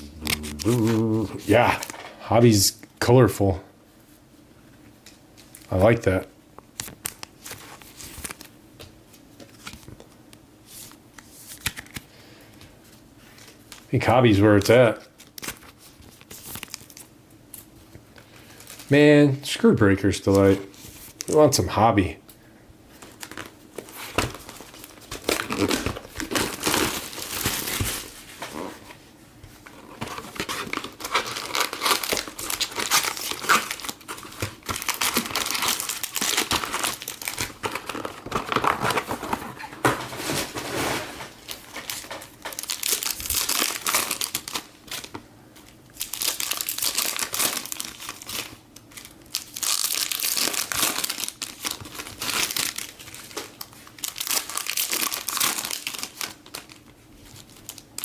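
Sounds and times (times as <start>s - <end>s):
foil wrappers crinkling and tearing: 6.8s - 8.6s, 13.2s - 17.7s, 18.3s - 18.9s, 22.9s - 28.8s, 29.6s - 58.0s.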